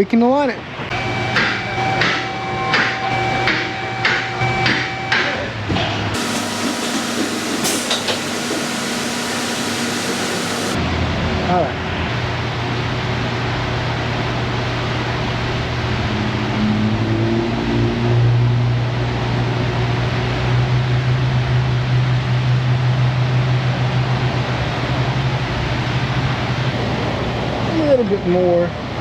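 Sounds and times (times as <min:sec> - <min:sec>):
machine humming and rushing: 0:06.2 - 0:10.9.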